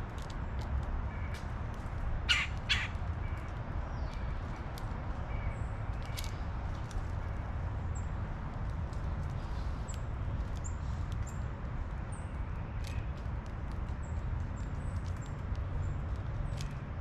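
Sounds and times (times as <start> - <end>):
small birds chirping: 2.2 - 8.2.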